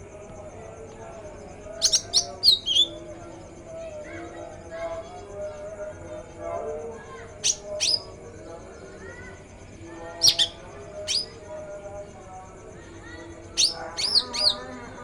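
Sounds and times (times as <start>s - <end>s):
songbird chirping and whistling: 1.8s - 3.0s, 7.4s - 8.1s, 10.2s - 11.4s, 13.6s - 14.7s.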